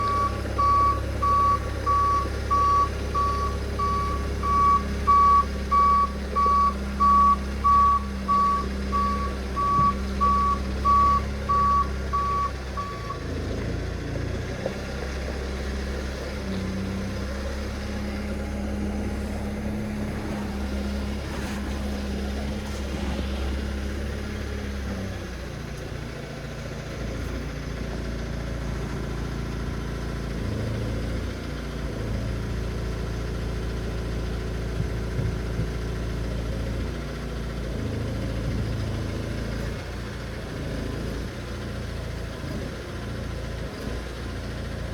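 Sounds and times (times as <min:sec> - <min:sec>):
reversing alarm beeps: 0:00.0 - 0:13.2
forklift engine rumble: 0:00.0 - 0:44.9.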